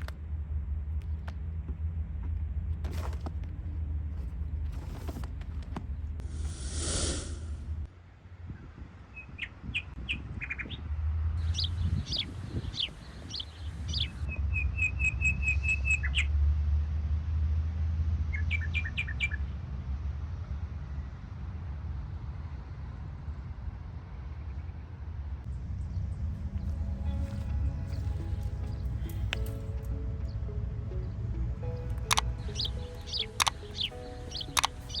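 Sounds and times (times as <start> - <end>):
rushing whoosh: 6.2 - 7.9
small birds chirping: 11.4 - 14.2, 26.4 - 30.5, 31.6 - 35.0
steady low rumble: 25.4 - 35.0
bird trill: 31.6 - 35.0.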